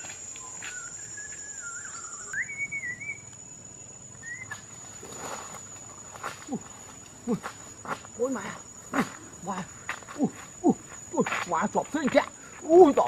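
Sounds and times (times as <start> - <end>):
wavering whistled tone: 0.0 - 4.8
high thin insect drone: 0.0 - 13.0.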